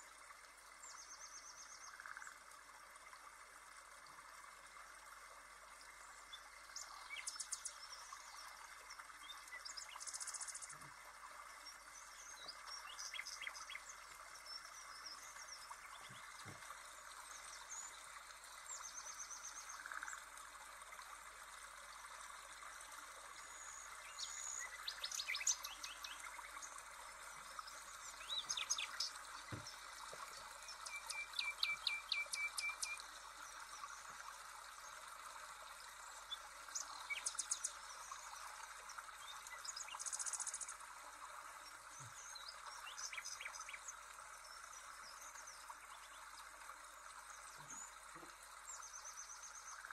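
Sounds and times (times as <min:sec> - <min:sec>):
faint steady hiss: 0:00.0 - 0:49.9
birds chirping and trilling: 0:23.6 - 0:26.5, 0:28.0 - 0:29.8.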